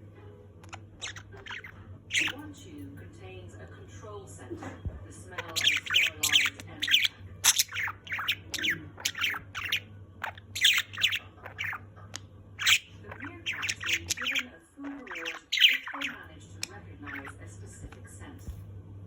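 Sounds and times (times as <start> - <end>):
budgerigar chirping and squawking: 0.6 - 2.5, 5.3 - 17.4.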